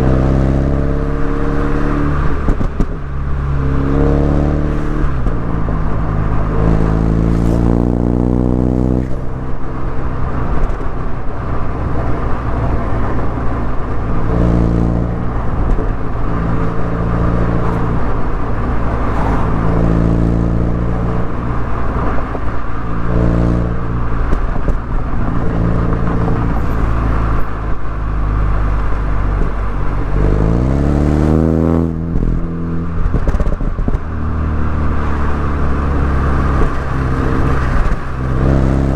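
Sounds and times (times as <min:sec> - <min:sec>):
car engine and exhaust: 0:00.0 - 0:38.9.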